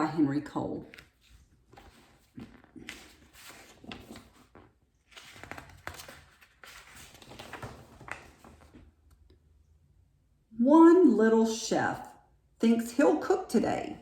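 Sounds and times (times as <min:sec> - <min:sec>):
book pages rustling: 0:00.8 - 0:09.1.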